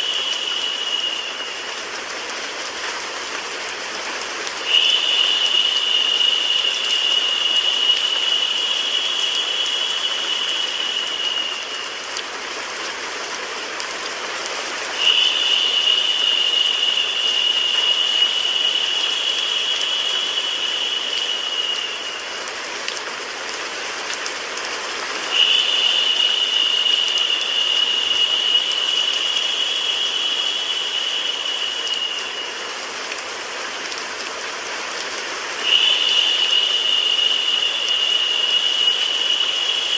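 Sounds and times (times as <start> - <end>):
bright high hiss: 0.0 - 2.0, 4.6 - 12.3, 14.9 - 22.7, 25.2 - 33.0, 35.6 - 39.9
rain: 0.0 - 39.9
white noise hiss: 0.0 - 39.9.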